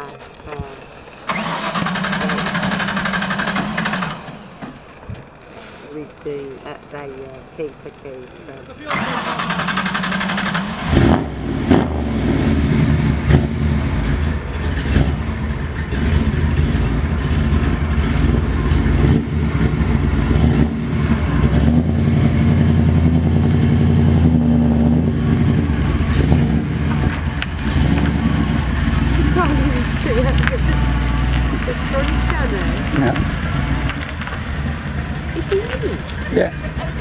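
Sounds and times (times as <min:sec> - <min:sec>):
car engine low rumble: 0:00.0 - 0:37.0
car engine throttle blips: 0:00.0 - 0:37.0.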